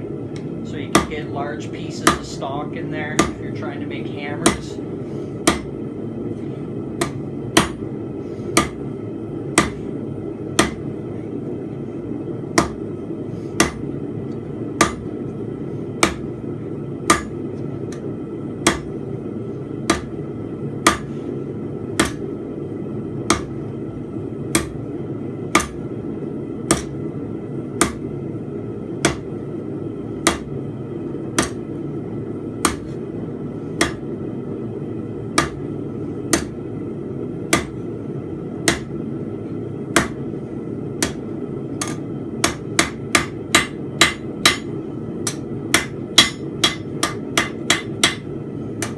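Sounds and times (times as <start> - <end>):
forge running: 0.0 - 48.9
hammer clanking on steel: 41.8 - 48.9.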